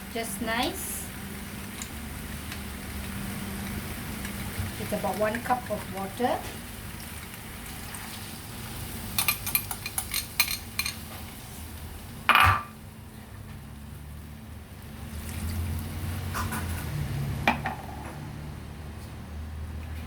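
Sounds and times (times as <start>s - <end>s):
metal spoon clinking on pot: 9.2s - 11.0s.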